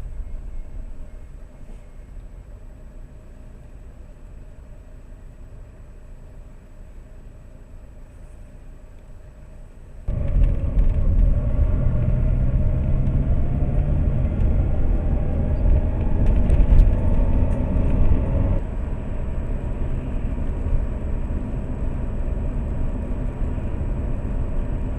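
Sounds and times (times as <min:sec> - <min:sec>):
road noise: 0:00.0 - 0:24.9
car engine accelerating: 0:10.1 - 0:24.9.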